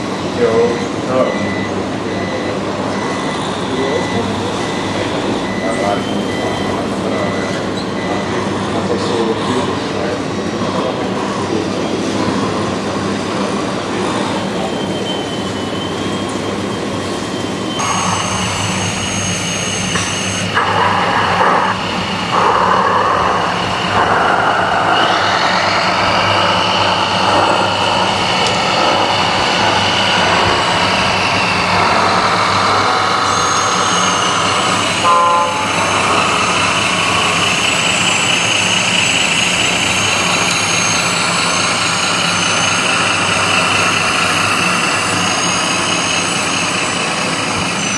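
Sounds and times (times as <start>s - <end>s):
electric motor and gearbox whine: 17.2s - 47.9s
low engine-like hum: 17.8s - 47.9s.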